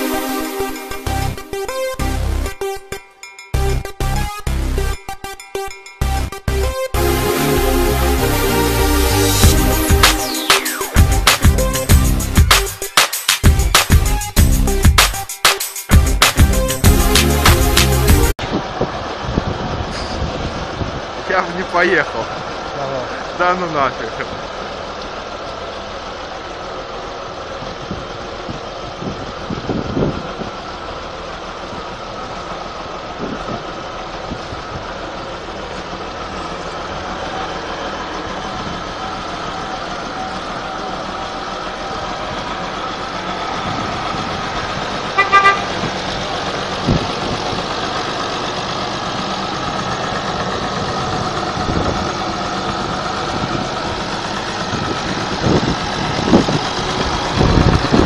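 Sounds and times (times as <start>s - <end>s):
tractor diesel engine running: 0.0s - 58.0s
horn toot: 45.1s - 45.8s.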